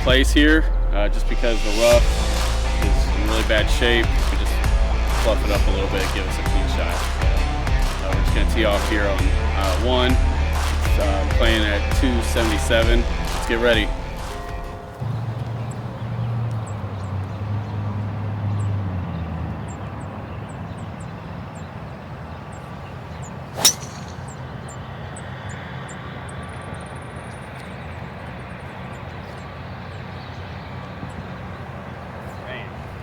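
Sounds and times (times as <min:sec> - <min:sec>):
golf club striking ball: 0:23.5 - 0:24.8.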